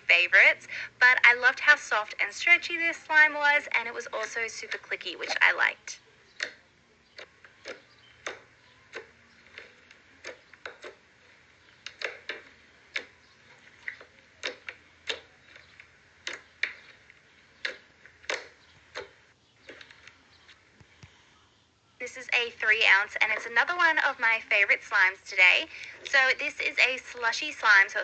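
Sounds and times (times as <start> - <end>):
slime clicking and popping: 7.2 - 11.0, 11.7 - 13.2, 13.8 - 16.9, 17.6 - 19.8.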